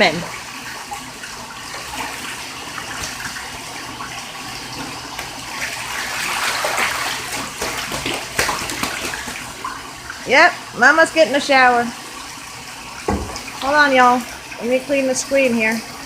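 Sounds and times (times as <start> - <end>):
goose splashing in water: 4.9 - 9.8.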